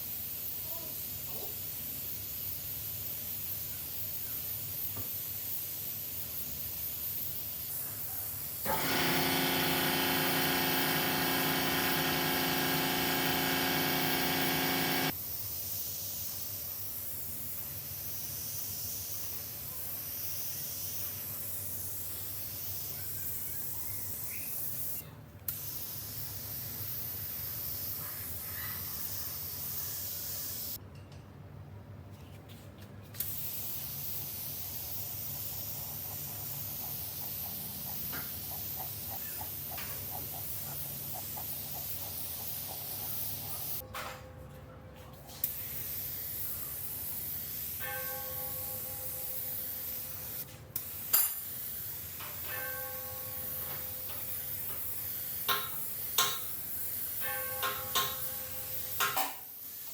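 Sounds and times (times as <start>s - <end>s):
steady air hiss: 0.0s - 30.8s, 33.2s - 43.8s, 45.4s - 47.8s, 49.0s - 52.5s
machine hum: 8.6s - 15.1s.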